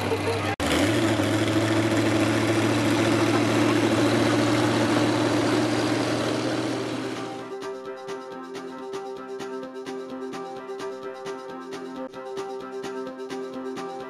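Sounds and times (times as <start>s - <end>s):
loud truck engine running: 0.0s - 7.5s.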